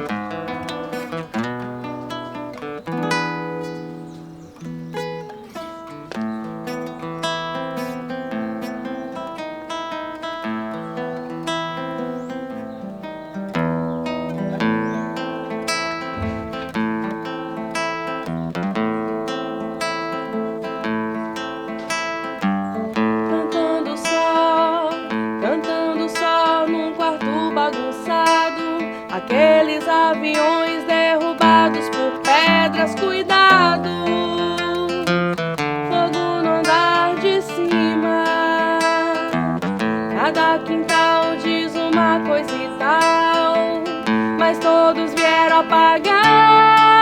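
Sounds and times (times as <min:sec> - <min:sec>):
acoustic guitar playing: 0:00.0 - 0:47.0
person singing: 0:23.0 - 0:47.0.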